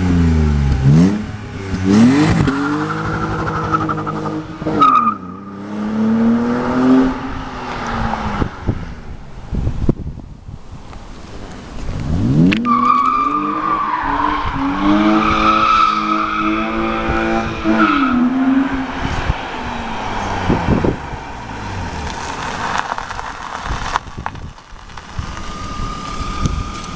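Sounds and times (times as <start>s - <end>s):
car engine revving: 0.0s - 9.5s, 11.9s - 24.0s.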